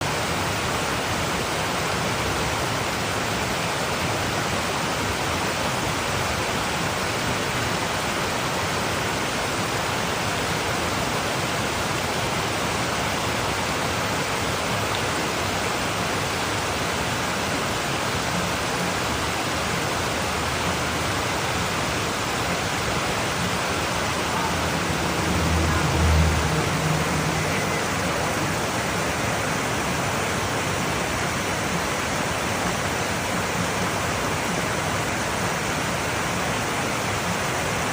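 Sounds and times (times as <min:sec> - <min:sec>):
flowing water: 0:00.0 - 0:37.9
low rumble: 0:24.0 - 0:29.0.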